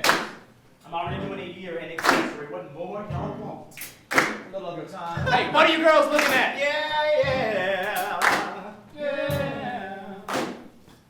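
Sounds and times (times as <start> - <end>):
voices singing: 0.0 - 10.8
sharp percussive hits: 2.0 - 2.4, 5.2 - 6.6.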